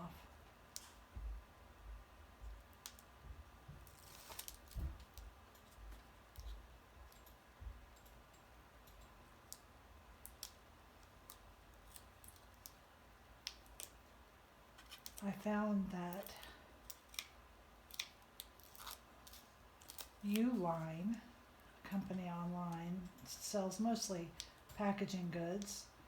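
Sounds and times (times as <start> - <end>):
paper rustle: 3.9 - 5.2.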